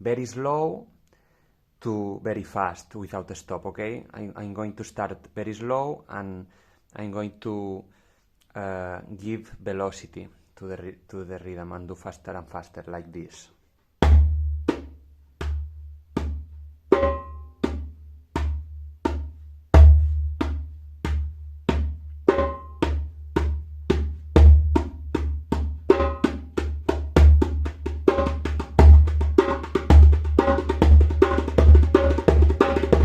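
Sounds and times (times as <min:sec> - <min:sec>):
hand drum rhythm: 0:14.0 - 0:33.0.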